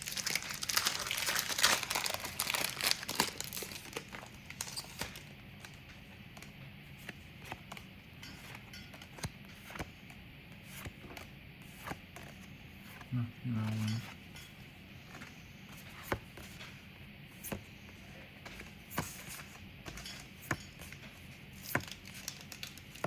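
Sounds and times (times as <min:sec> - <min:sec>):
wrappers tearing and crinkling: 0:00.0 - 0:05.8, 0:21.8 - 0:23.0.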